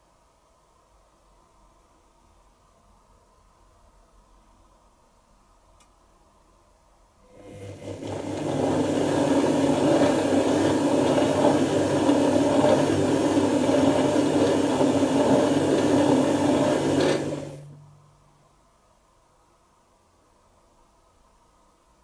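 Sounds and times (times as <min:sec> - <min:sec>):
washing machine drum churning: 0:07.4 - 0:17.8.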